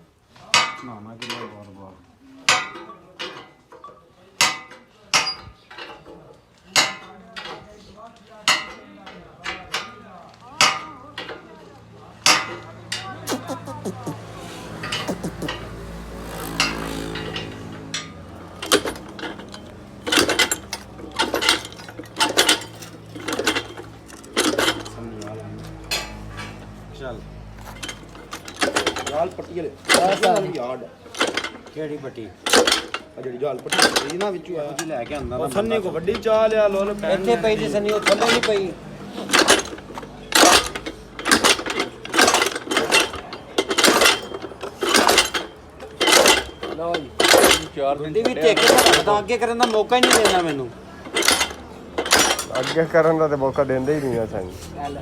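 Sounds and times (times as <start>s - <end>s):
metal clattering and knocking: 16.5s - 25.0s, 27.6s - 31.8s, 32.4s - 53.6s
metal clanking under hand blows: 37.6s - 52.8s.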